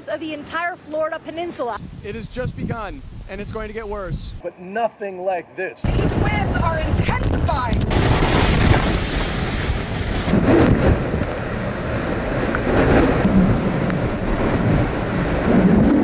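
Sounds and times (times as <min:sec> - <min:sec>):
wind blasting microphone: 0:01.7 - 0:04.4, 0:05.8 - 0:16.0
surf: 0:05.8 - 0:16.0.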